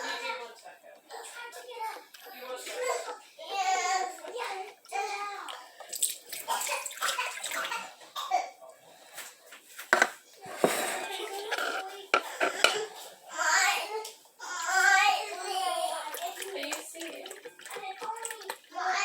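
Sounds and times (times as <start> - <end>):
cups and carton knocking: 9.9 - 12.8
milk pouring gurgling: 15.2 - 19.0.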